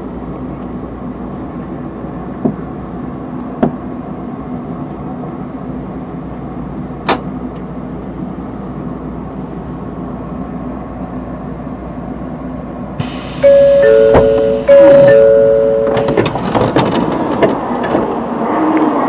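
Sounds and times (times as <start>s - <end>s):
two-tone ding-dong chime: 13.4s - 16.2s.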